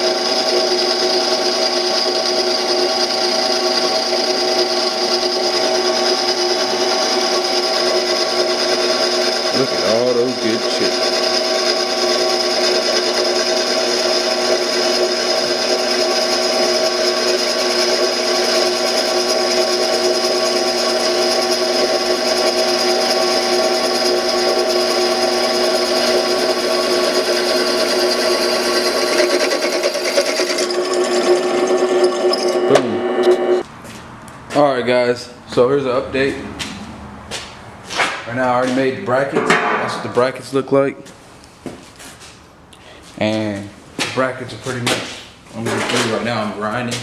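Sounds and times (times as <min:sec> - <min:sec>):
drill press cutting metal: 0:00.0 - 0:33.6.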